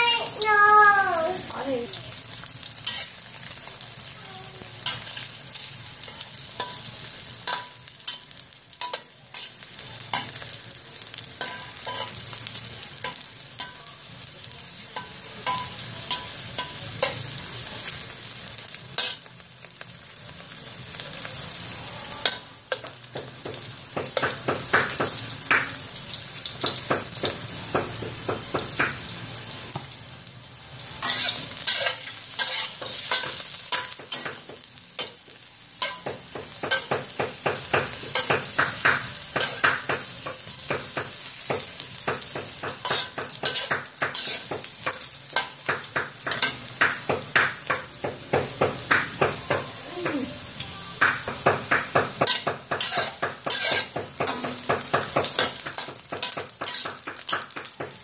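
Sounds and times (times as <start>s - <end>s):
mushrooms sizzling in oil: 0.0s - 58.0s
metal spatula scraping a pan: 2.7s - 3.3s, 4.8s - 10.5s, 19.0s - 19.3s, 30.8s - 36.9s, 42.5s - 46.7s, 52.2s - 57.4s.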